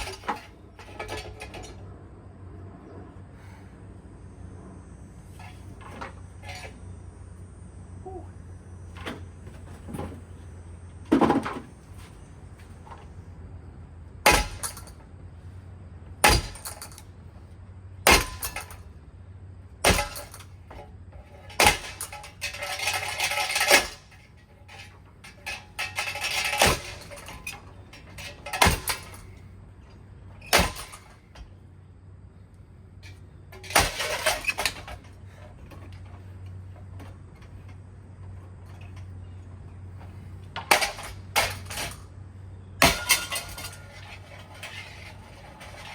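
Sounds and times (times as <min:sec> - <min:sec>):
low steady hum: 0:00.0 - 0:45.9
clattering breaking pieces: 0:16.2 - 0:17.0, 0:19.8 - 0:20.5, 0:21.2 - 0:29.4, 0:30.4 - 0:31.5, 0:33.0 - 0:35.2, 0:40.6 - 0:42.0, 0:42.8 - 0:45.9.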